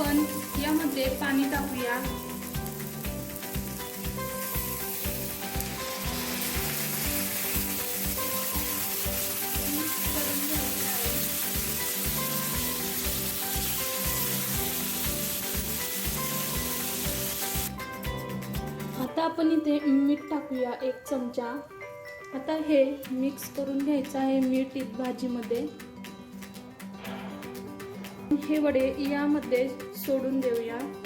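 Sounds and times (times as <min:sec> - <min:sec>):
gravy sizzling in hot oil: 0:00.0 - 0:17.9.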